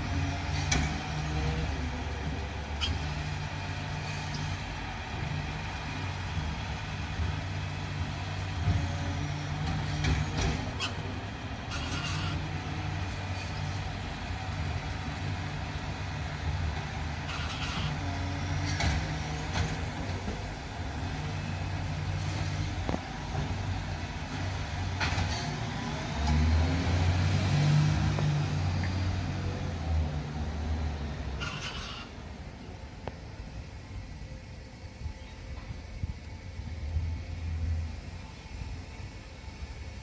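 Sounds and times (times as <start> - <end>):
truck engine running: 0.0 - 35.0.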